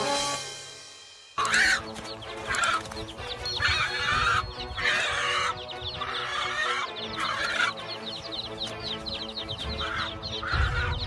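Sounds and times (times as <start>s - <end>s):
background music: 0.0s - 11.0s
wings flapping: 1.4s - 5.2s
bird calling loudly: 1.4s - 11.0s.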